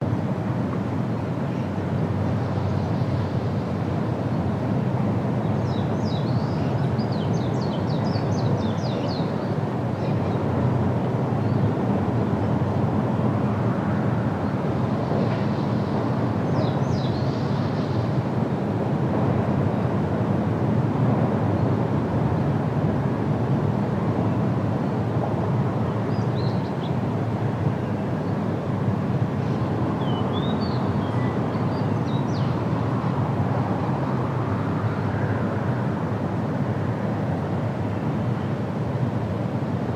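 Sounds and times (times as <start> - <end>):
small birds chirping: 5.6 - 10.5, 29.4 - 32.6.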